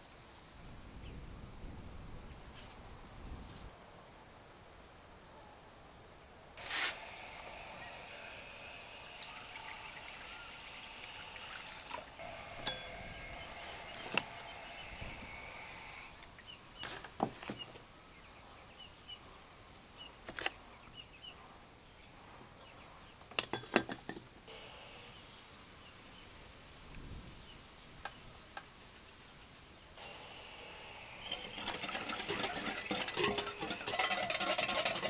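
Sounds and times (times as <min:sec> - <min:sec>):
insects hissing: 0:00.0 - 0:03.8, 0:06.6 - 0:35.0
handling clicks and knocks: 0:31.2 - 0:35.0.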